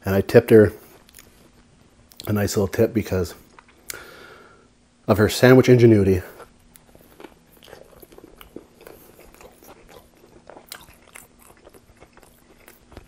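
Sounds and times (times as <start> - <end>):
chewing crunchy sandwich: 6.3 - 13.0.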